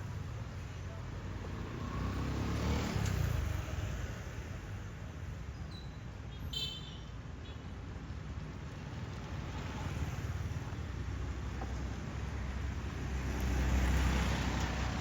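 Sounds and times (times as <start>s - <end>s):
vehicle passing by: 1.5s - 3.4s.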